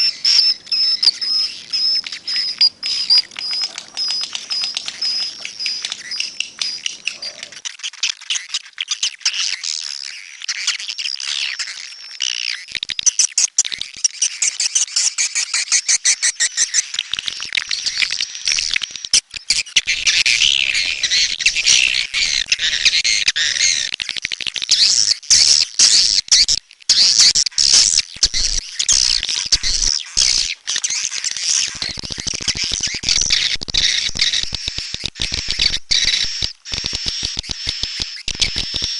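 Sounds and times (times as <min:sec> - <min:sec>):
swiftlets twittering: 0:00.0 - 0:07.6.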